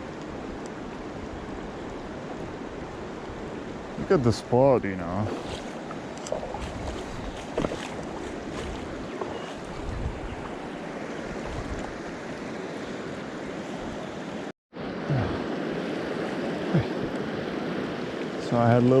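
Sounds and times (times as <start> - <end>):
flowing river water: 0.0 - 19.0.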